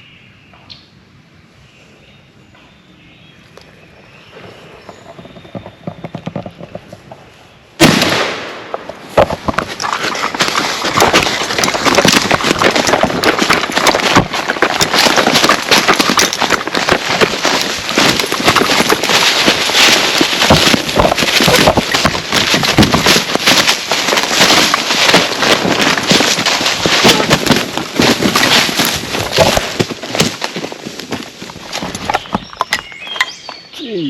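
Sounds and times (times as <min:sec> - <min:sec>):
turkey thrashing on the ground: 0:04.8 - 0:33.6
loud gunshot: 0:07.8 - 0:08.7.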